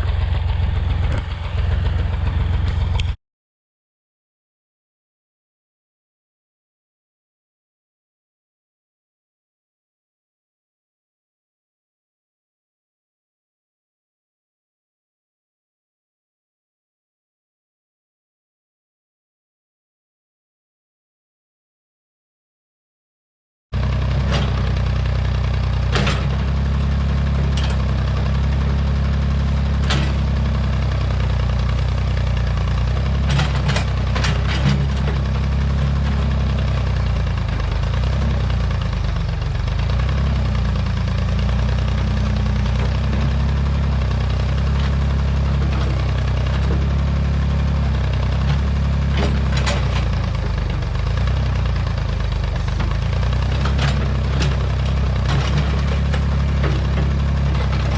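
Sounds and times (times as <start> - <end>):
backhoe engine running: 0.0 - 3.2, 23.8 - 57.9.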